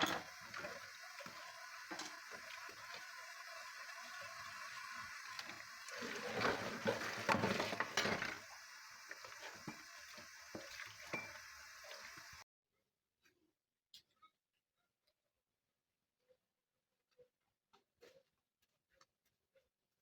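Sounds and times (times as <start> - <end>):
water splashing: 0.0 - 12.4
dishes clinking: 5.4 - 8.5, 9.2 - 12.3.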